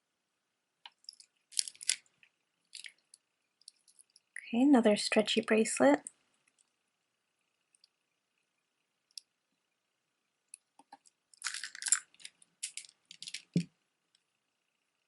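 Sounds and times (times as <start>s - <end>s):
jewelry clicking and rustling: 0.9s - 4.4s, 10.8s - 13.7s.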